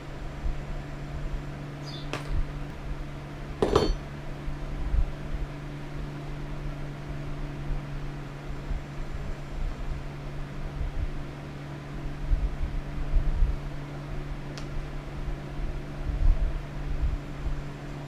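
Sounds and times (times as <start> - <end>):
steady low hum: 0.0 - 18.0
sharp metallic knocks: 3.6 - 4.0.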